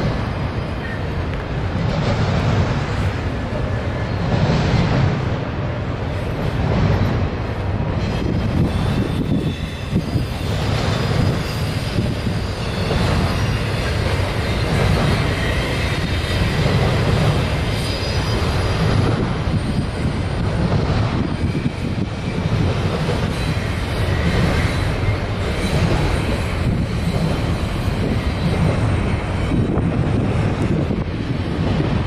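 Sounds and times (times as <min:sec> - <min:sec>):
train wheels rumbling on bridge: 0:00.0 - 0:32.0
faint high wheel squeal: 0:08.4 - 0:16.8, 0:17.4 - 0:20.4.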